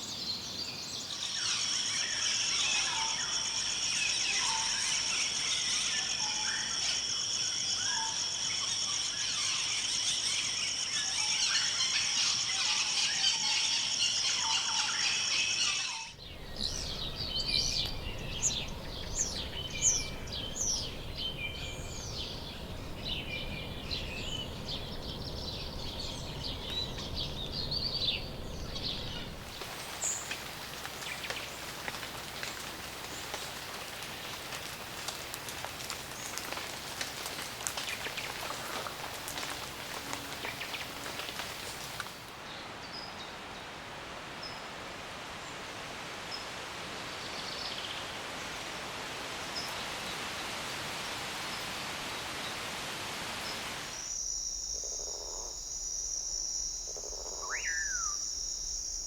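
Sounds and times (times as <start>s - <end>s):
birds chirping: 14.2s - 42.3s, 57.3s - 58.8s
low rumble: 16.2s - 29.5s
rain pattering and dripping: 16.3s - 42.4s
faint bird calls: 57.1s - 58.4s.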